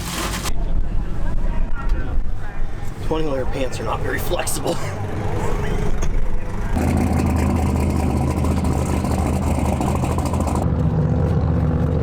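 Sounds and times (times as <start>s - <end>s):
vehicle engine idling: 2.7s - 12.0s.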